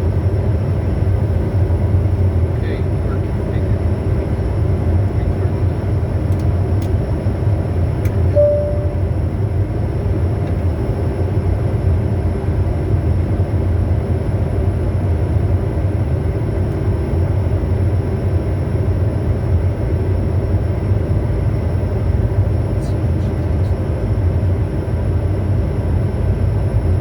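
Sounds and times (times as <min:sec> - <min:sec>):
jet engine and airflow noise: 0:00.0 - 0:27.0
short single tone: 0:08.3 - 0:09.1.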